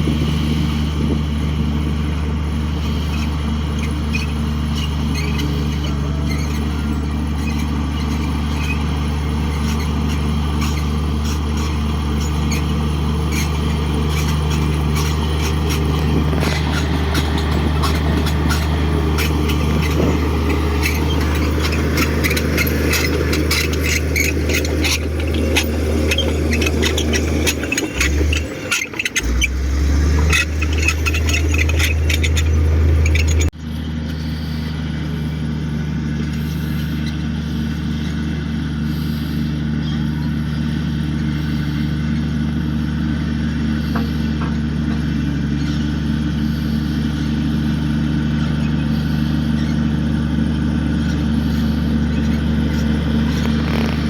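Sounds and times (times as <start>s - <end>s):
bulldozer diesel engine running: 0.0s - 54.0s
rapid clatter: 7.4s - 29.5s, 51.4s - 54.0s.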